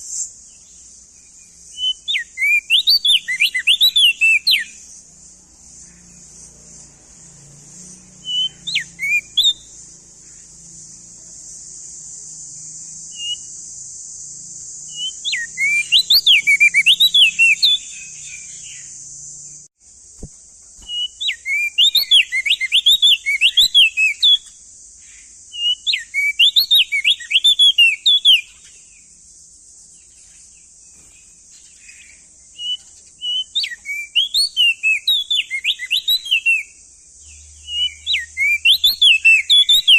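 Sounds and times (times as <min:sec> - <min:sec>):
bird singing high whistled notes: 0:00.0 - 0:04.9, 0:05.9 - 0:11.2, 0:12.2 - 0:19.7, 0:20.8 - 0:29.2, 0:30.0 - 0:39.9.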